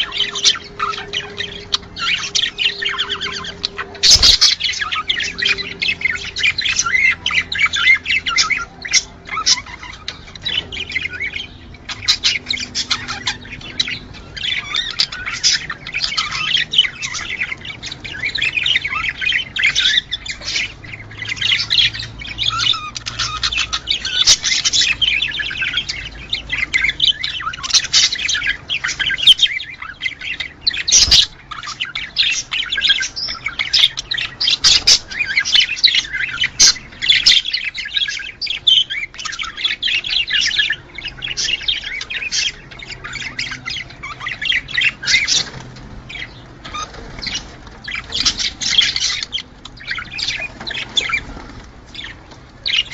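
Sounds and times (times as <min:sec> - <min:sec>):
budgerigars chattering: 0:00.0 - 0:52.9.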